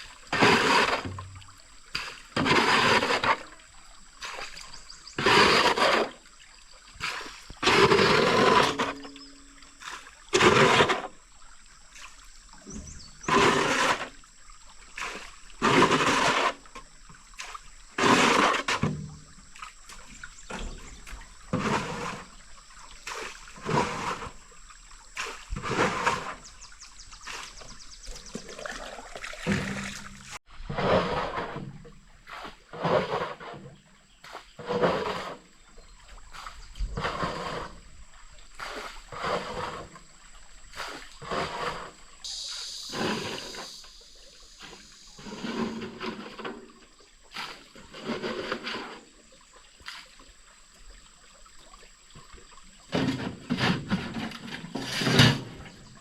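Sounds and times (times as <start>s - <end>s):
water splashing: 0.0s - 33.6s, 34.2s - 56.0s.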